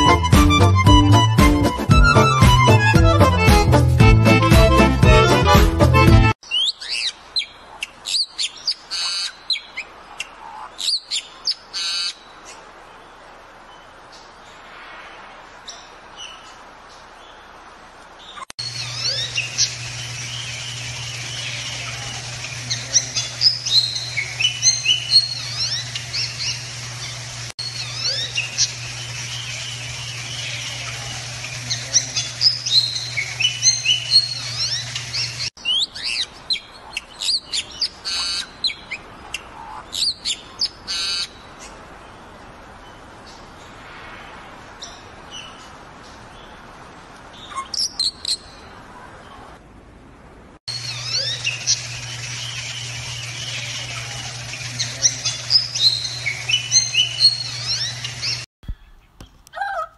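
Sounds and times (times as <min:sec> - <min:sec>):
low hum: 0:18.6 - 0:35.5, 0:50.7 - 0:58.5.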